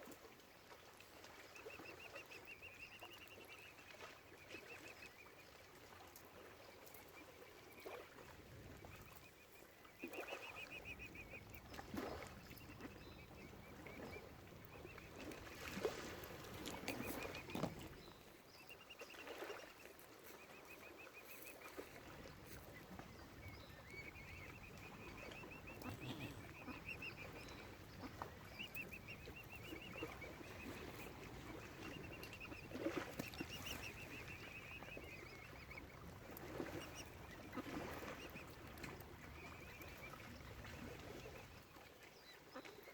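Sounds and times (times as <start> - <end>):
bird trilling calls: 23.6 - 27.6.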